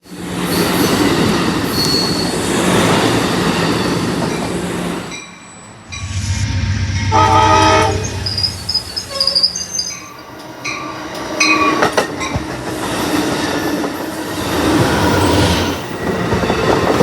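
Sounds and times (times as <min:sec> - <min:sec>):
low train engine hum: 0:00.0 - 0:17.0
train railcars rolling: 0:00.0 - 0:17.0
chord of steady tones: 0:05.9 - 0:08.9.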